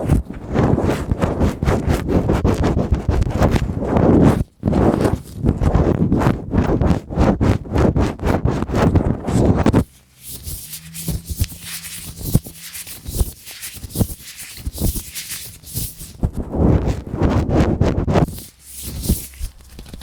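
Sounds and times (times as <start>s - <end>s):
latex gloved hands rubbing: 9.5s - 20.0s.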